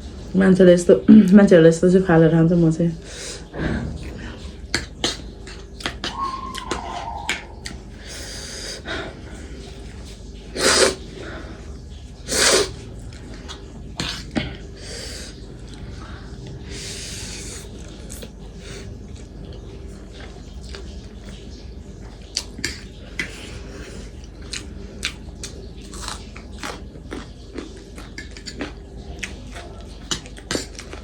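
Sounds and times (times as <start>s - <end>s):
person eating: 3.1s - 31.0s
sniffing: 10.5s - 11.6s.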